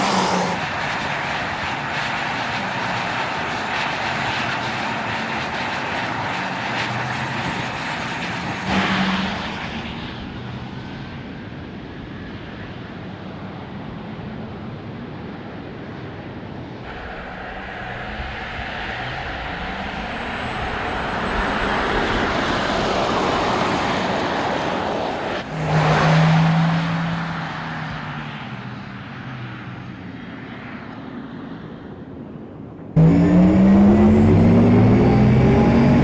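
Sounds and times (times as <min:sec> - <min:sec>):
vehicle rushing noise: 0:00.0 - 0:01.3, 0:16.9 - 0:28.5, 0:33.0 - 0:36.0.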